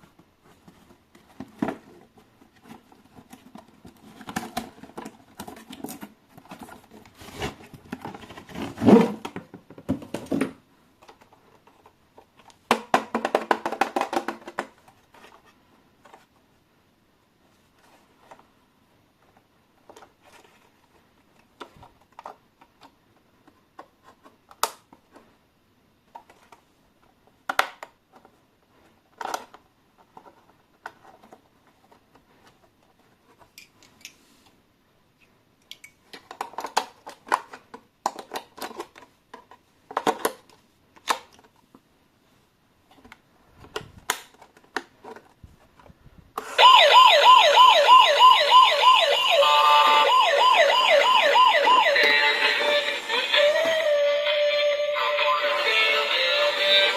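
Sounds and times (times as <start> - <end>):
handling toy and packaging: 0.0 - 16.6, 17.4 - 34.5, 36.0 - 56.9
warbling toy police siren: 46.6 - 56.9.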